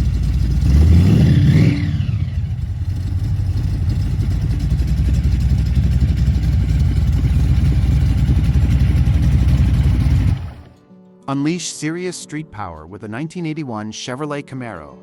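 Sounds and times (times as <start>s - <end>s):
supercharged engine idling loudly: 0.0s - 10.7s.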